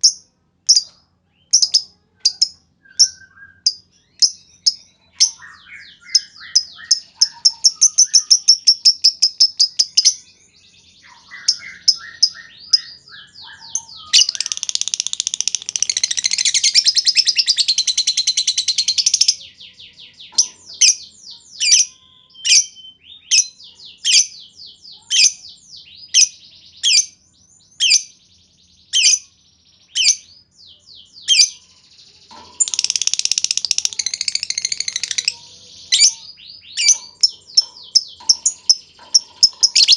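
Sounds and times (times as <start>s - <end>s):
bird sharp high chirps: 0.0s - 28.2s, 28.8s - 39.9s
bird chattering trills: 1.5s - 10.3s, 11.0s - 24.4s, 31.2s - 39.9s.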